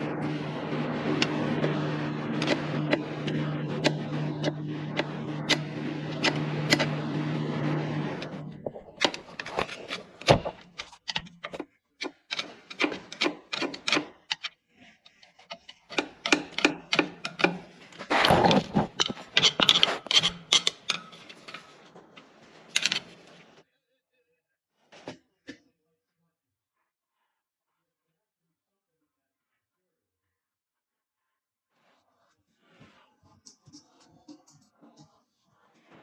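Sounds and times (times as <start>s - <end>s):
steady motor hum: 0.0s - 14.4s, 15.2s - 23.6s
hand tool knocks and scraping: 0.0s - 23.6s
rasping scrape: 0.0s - 23.6s.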